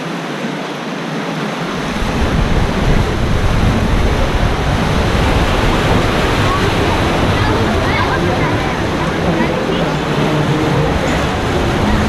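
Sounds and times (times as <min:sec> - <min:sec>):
rushing water: 0:00.0 - 0:12.0
low rumble: 0:01.6 - 0:12.0.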